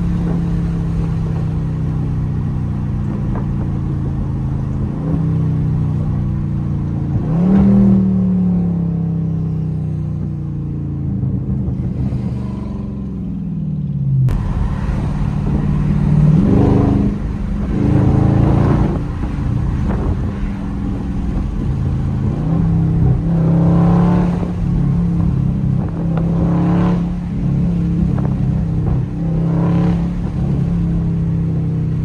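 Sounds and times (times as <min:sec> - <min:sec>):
car engine revving: 0:00.0 - 0:13.6, 0:14.3 - 0:32.0.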